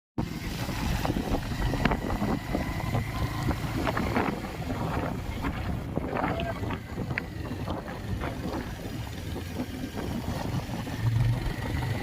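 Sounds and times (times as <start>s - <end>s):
motorcycle engine rumble: 0.2s - 12.0s
wind buffeting microphone: 0.2s - 12.0s.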